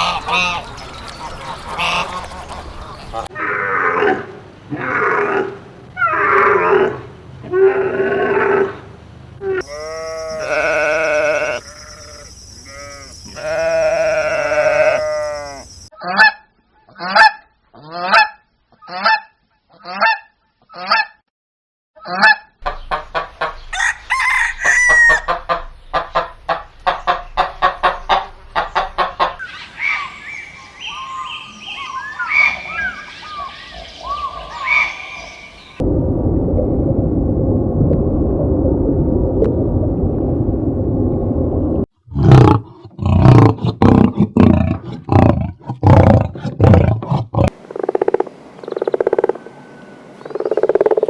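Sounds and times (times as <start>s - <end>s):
geese honking: 0.0s - 3.3s, 47.6s - 51.0s.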